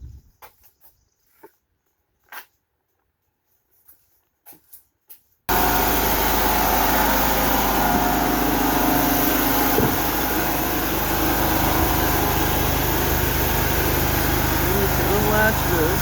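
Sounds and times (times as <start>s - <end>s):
skid steer engine running: 5.5s - 16.0s.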